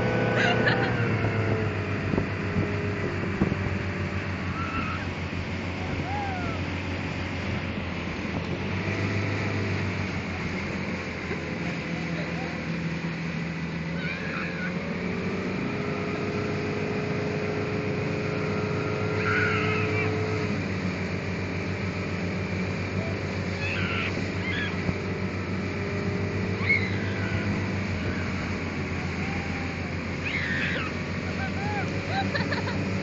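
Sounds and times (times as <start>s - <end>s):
motorboat engine running: 0.0s - 33.0s
water and wind noise: 0.0s - 33.0s
faint high-pitched cries: 26.6s - 27.6s, 30.2s - 31.9s.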